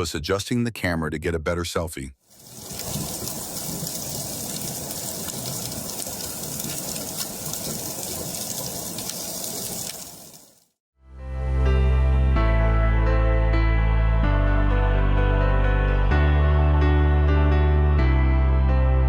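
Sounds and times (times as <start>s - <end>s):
running water: 2.3s - 10.7s.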